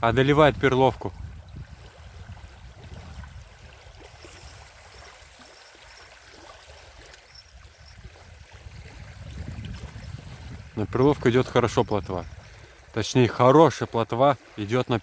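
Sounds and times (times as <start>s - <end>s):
wind buffeting microphone: 0.0s - 5.5s, 7.3s - 13.0s
small waves lapping at shore: 0.1s - 15.0s.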